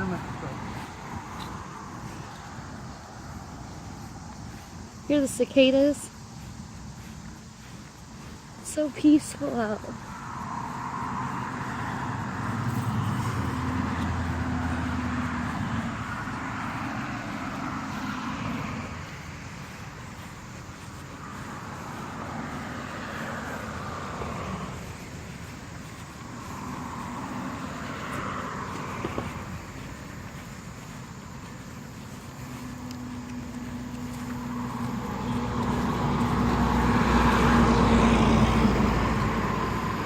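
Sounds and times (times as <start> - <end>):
cicada chorus droning: 0.0 - 40.0
vehicle engine humming: 0.0 - 40.0.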